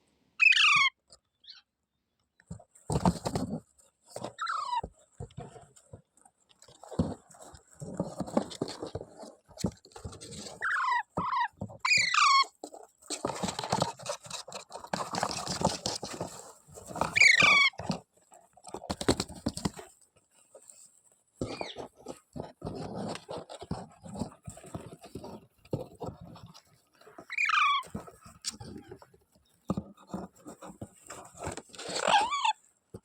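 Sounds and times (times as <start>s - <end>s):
parrot squawking: 0.4s - 0.9s, 27.3s - 27.8s
scratchy rustling: 2.5s - 33.0s.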